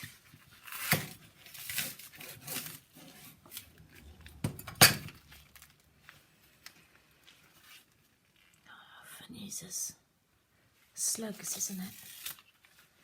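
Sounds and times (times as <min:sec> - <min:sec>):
vegetables rustling: 0:11.2 - 0:13.0.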